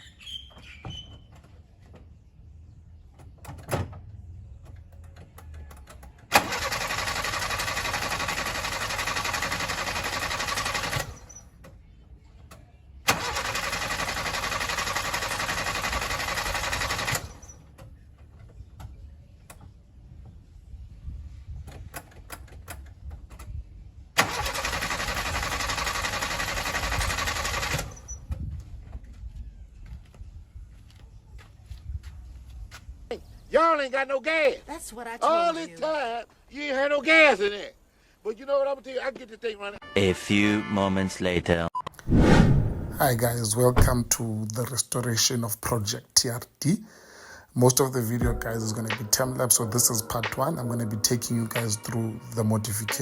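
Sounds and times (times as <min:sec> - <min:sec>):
engine starter cranking: 0:04.6 - 0:11.7, 0:13.1 - 0:18.0, 0:24.2 - 0:28.4.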